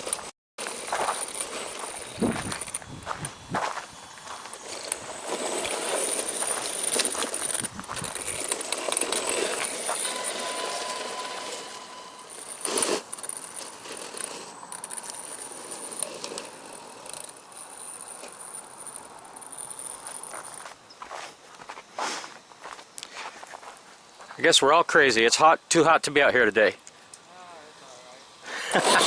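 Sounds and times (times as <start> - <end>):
truck crunching and rattling on dirt: 0.0 - 18.3
high electric motor whine: 0.0 - 20.7
sharp clatter: 0.0 - 20.8.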